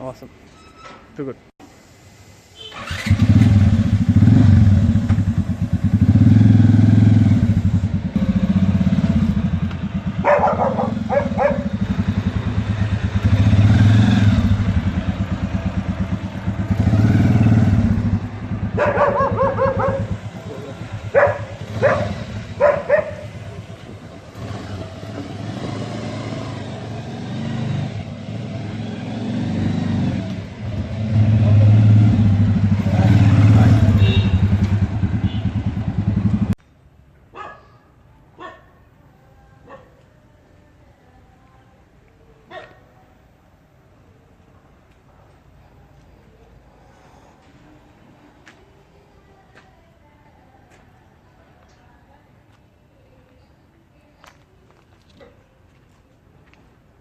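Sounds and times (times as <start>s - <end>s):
motorcycle engine revving: 2.6s - 36.6s.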